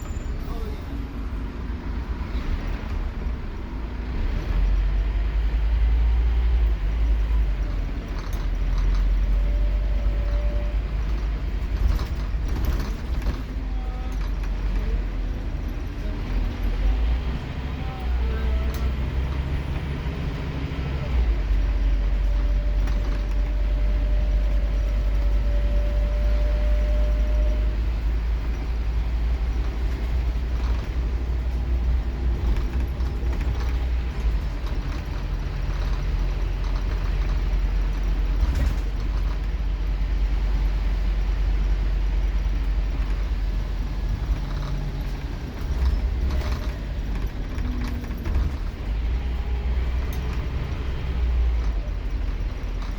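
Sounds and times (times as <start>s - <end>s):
bus engine droning: 0.0s - 52.9s
clicks and rattles: 42.7s - 50.7s.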